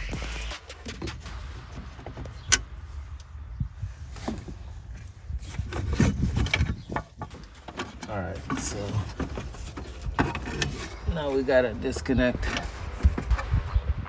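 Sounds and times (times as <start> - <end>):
rubbing and knocking: 0.0 - 13.8
plastic trim clicking and rattling: 5.4 - 11.1.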